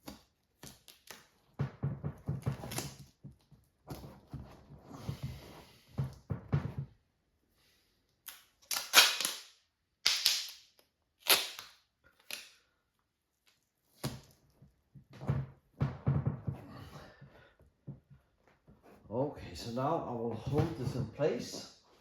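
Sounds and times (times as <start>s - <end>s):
tape ripping off a roll: 0.0s - 1.5s, 2.4s - 3.2s, 8.2s - 12.6s.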